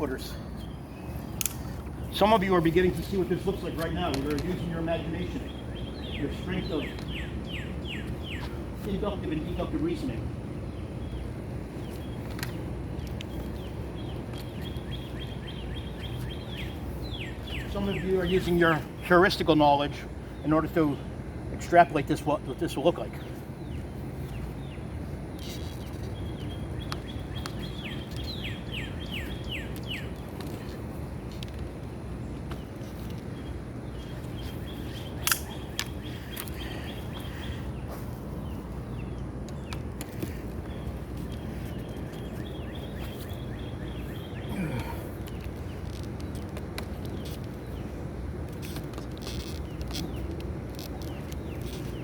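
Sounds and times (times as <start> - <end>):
low outdoor rumble: 0.0 - 52.0
small birds chirping: 0.0 - 52.0
songbird singing: 0.0 - 52.0.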